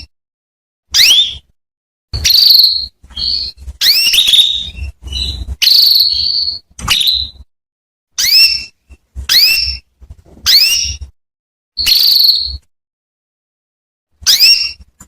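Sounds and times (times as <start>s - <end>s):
canary chirping: 0.9s - 1.5s, 2.2s - 7.5s, 8.2s - 11.2s, 11.8s - 12.7s, 14.2s - 15.0s.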